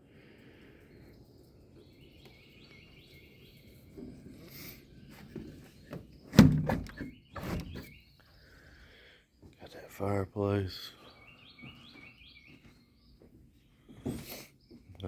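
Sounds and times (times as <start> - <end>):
birds chirping: 0.0 - 15.0
heavy thunks: 6.3 - 7.9.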